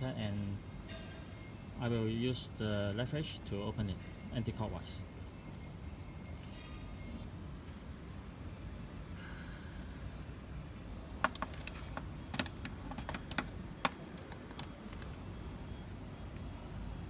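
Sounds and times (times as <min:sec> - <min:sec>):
metal tools clinking: 0:11.0 - 0:15.2.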